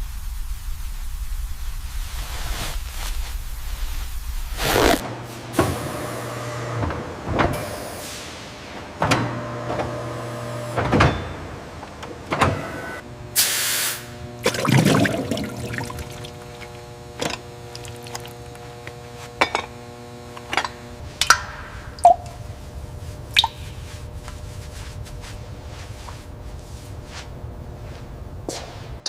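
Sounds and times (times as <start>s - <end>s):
steady hum: 0.0s - 5.5s, 13.0s - 29.0s
short burst of hiss: 13.4s - 14.1s.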